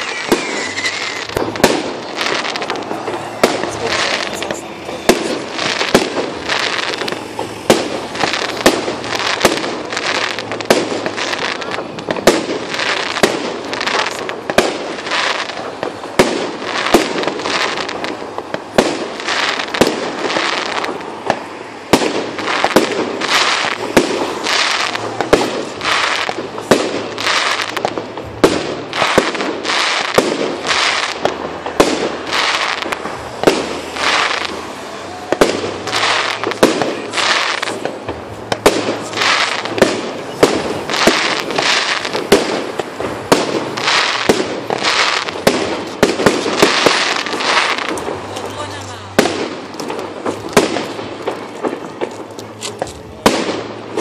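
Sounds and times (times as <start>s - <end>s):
firework shells bursting: 0.0s - 34.8s
firework crackle: 0.0s - 54.0s.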